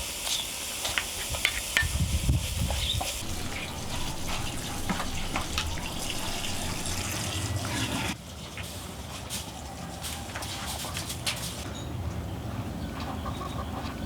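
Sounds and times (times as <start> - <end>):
running water: 2.7 - 8.2.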